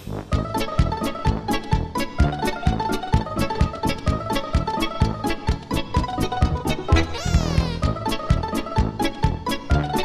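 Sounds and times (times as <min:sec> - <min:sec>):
plucked strings over quick beat: 0:05.6 - 0:08.1.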